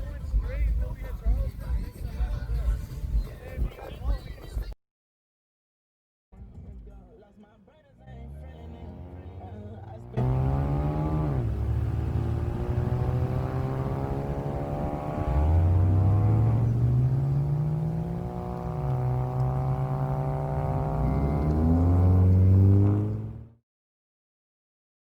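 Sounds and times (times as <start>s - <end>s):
car engine accelerating: 8.0s - 23.6s.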